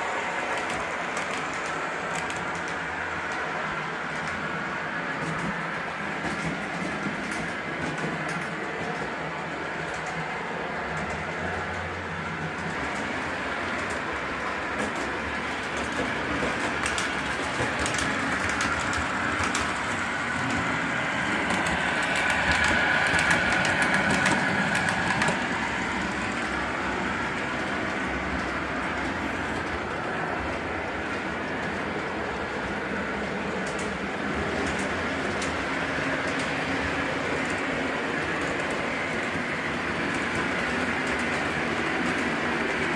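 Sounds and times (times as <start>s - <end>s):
model train wheels clicking: 0.0s - 42.9s.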